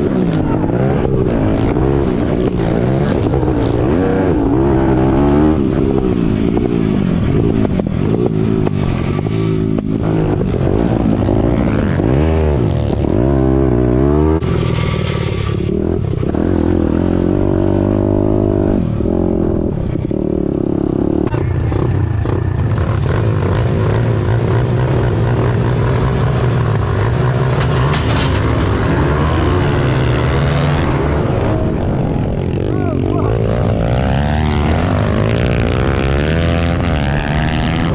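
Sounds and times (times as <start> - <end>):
pit bike engine revving: 20.9 - 37.9.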